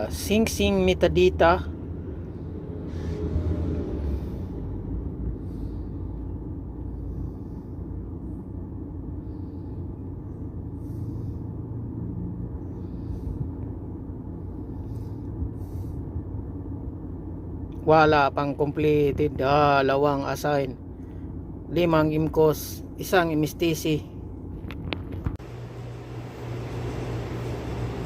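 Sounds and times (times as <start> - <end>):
car engine rumble inside cabin: 0.0 - 17.9.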